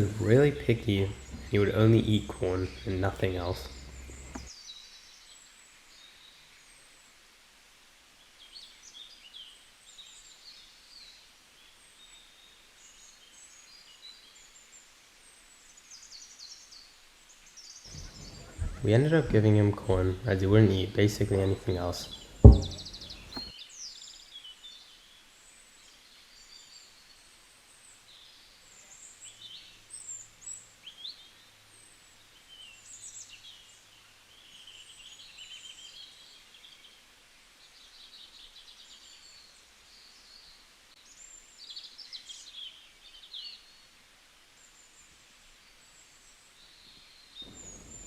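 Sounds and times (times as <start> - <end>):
birds chirping and trilling: 0.0 - 4.5, 17.8 - 23.5, 47.4 - 48.0.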